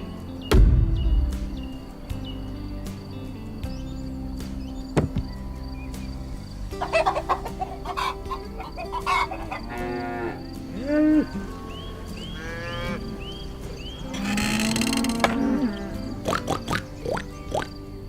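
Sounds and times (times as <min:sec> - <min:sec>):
background music: 0:00.0 - 0:18.0
chickens clucking: 0:04.9 - 0:17.8
cow mooing: 0:07.0 - 0:16.9.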